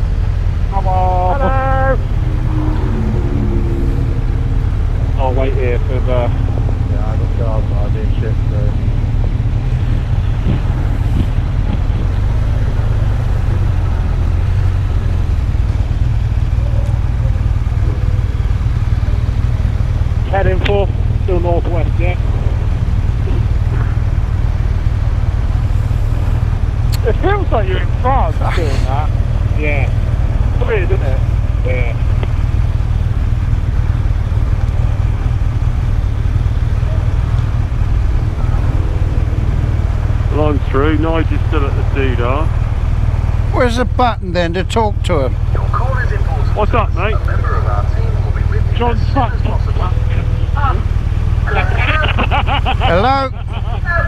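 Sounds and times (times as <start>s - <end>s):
wind noise on microphone: 0.0s - 40.7s
motorcycle engine rumbling: 0.0s - 54.0s.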